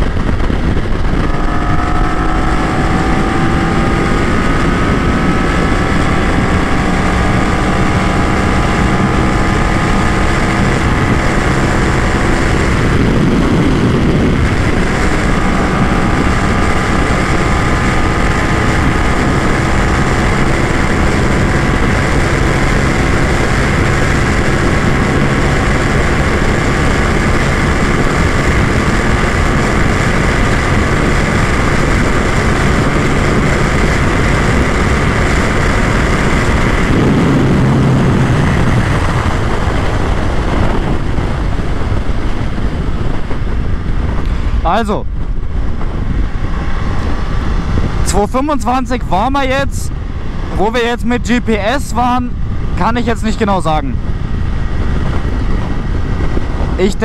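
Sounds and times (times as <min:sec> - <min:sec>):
motorcycle engine at high revs: 0:00.0 - 0:57.0
wind rush: 0:00.0 - 0:57.0.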